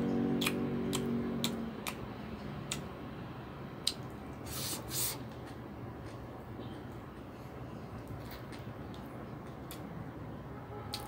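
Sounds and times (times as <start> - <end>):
man chewing with wet mouth clicks: 0.0 - 3.0, 3.8 - 6.3.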